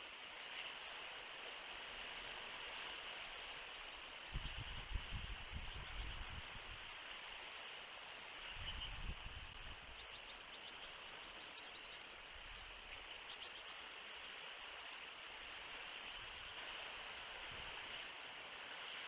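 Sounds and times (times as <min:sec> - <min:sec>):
wind rumbling on microphone: 0:04.3 - 0:06.8, 0:08.6 - 0:09.8
small birds chirping: 0:08.3 - 0:12.1.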